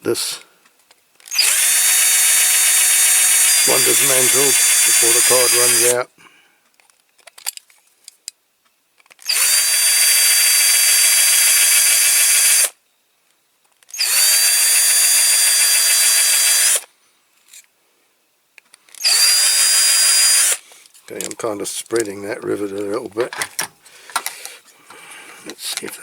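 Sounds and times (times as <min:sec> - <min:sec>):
small electric drill whining: 0:01.3 - 0:06.0, 0:09.2 - 0:12.8, 0:13.9 - 0:16.9, 0:19.0 - 0:20.6.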